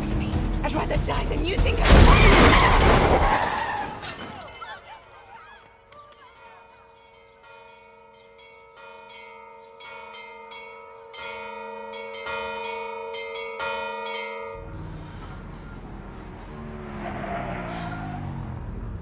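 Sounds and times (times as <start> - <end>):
church bells ringing: 6.3 - 15.8
car engine revving: 14.6 - 19.0.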